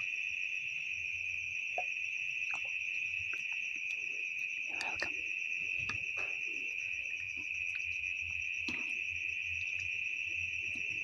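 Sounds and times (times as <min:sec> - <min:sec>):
wet chewing smacks: 0:02.5 - 0:06.7.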